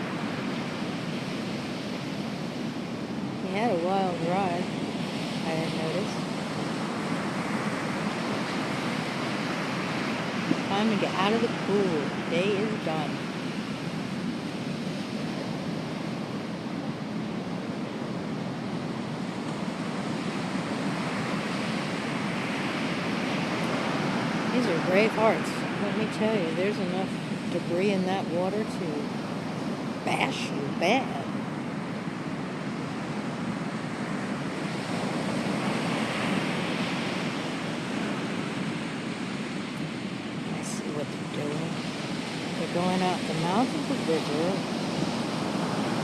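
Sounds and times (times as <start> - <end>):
ocean surf washing ashore: 0.0 - 46.0
waves breaking on beach: 0.0 - 46.0.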